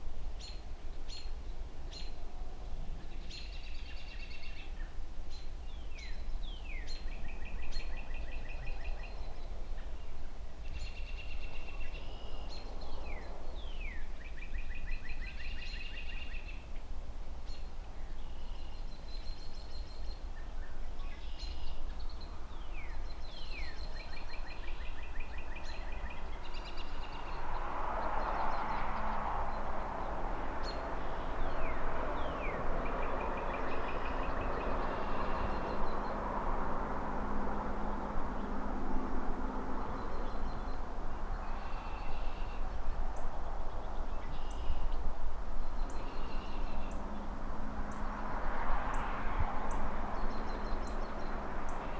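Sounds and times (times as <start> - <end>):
distant city traffic rumble: 0.0 - 51.9
songbird singing with a trill: 0.4 - 16.8, 17.4 - 51.9.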